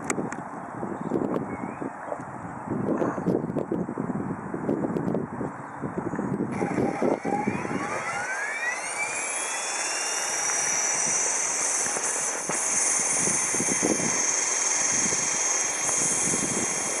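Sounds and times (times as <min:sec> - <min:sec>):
wind noise on microphone: 0:00.0 - 0:17.0
rc helicopter motor whine: 0:06.4 - 0:17.0.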